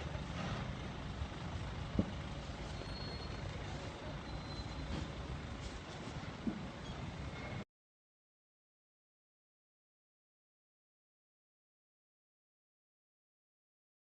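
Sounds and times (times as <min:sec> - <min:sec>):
vehicle road noise rumbling: 0:00.0 - 0:07.7.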